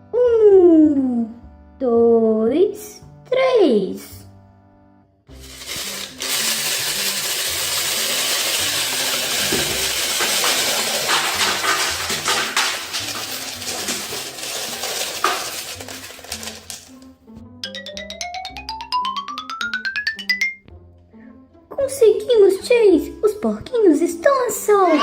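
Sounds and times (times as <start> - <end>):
plastic toy pieces clattering: 5.3 - 17.0.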